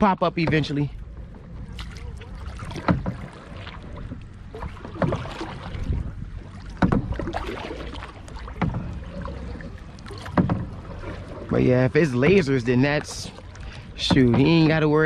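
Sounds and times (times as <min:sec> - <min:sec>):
low rumble: 0:00.0 - 0:14.8
paddle splashing strokes: 0:00.4 - 0:15.0.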